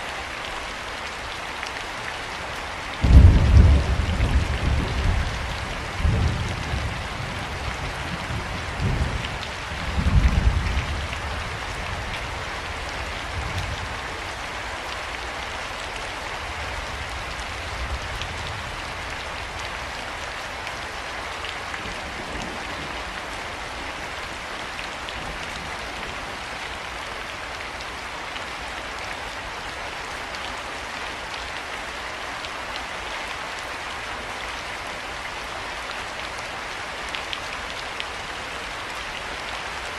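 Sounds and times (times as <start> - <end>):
heavy rain falling: 0.0 - 39.9
low thunder rumbling: 3.0 - 11.3.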